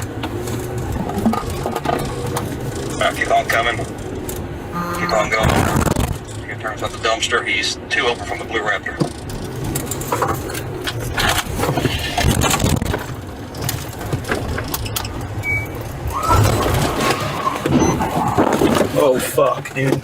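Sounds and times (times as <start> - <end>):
police vehicle engine: 0.0 - 20.0
road rumble: 0.0 - 20.0
knocks and rattles: 9.0 - 15.4, 16.3 - 20.0.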